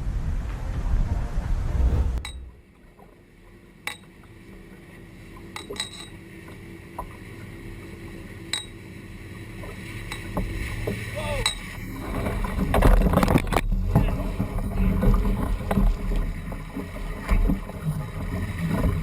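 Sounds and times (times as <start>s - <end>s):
low steady rumble: 0.0s - 5.6s.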